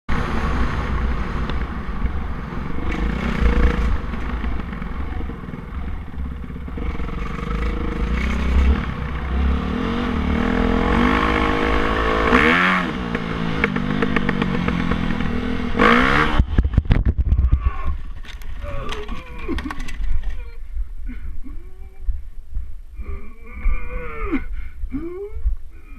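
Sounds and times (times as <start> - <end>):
dirt bike engine revving: 2.7 - 16.6
wind buffeting microphone: 14.4 - 25.9.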